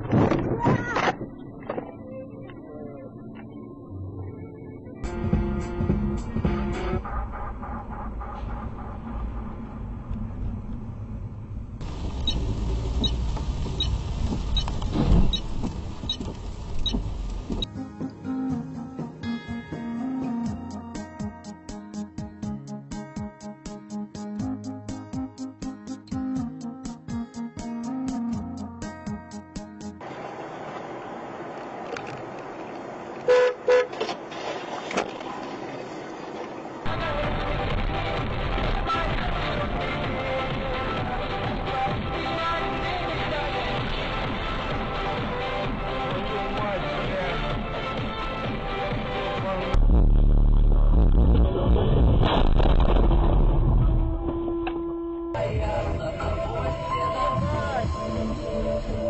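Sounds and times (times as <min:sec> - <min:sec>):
road noise: 0:00.0 - 0:19.4, 0:28.9 - 0:52.4
car engine rumble: 0:00.0 - 0:19.6, 0:30.0 - 0:46.7
music: 0:03.6 - 0:07.2, 0:17.6 - 0:30.0, 0:36.9 - 0:51.4, 0:55.2 - 0:59.0
traffic noise: 0:07.0 - 0:17.7, 0:30.0 - 0:49.7
car horn honking: 0:33.3 - 0:34.0.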